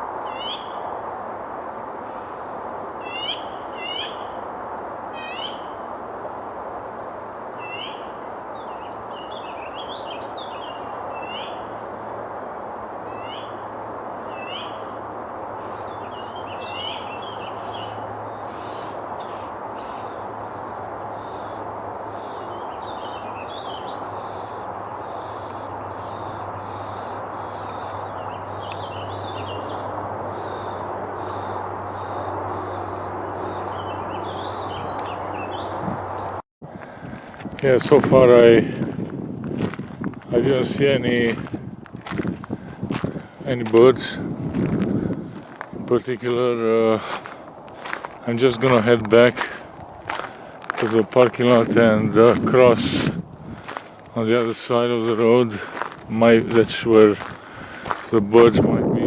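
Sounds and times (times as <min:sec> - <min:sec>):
steady rushing hum: 0:00.0 - 0:59.0
small birds chirping: 0:07.6 - 0:12.0, 0:14.2 - 0:15.0, 0:15.6 - 0:38.2, 0:39.5 - 0:58.2.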